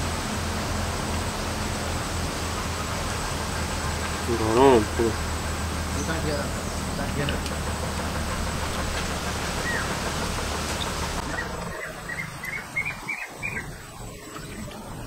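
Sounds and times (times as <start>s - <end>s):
steady background hiss: 0.0s - 15.0s
bird chirps: 9.4s - 10.0s, 10.7s - 14.7s.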